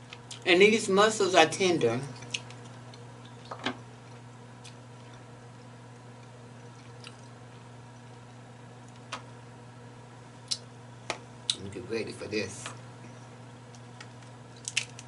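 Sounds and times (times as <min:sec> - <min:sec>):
steady low hum: 0:00.0 - 0:15.0
chewing mussels: 0:02.1 - 0:09.1, 0:13.7 - 0:15.0.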